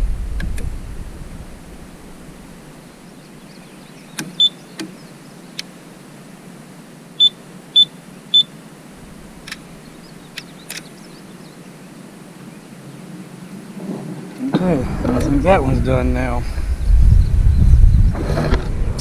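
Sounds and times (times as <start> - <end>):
sharp clicks: 4.2 - 5.0, 9.4 - 9.7, 10.3 - 11.0.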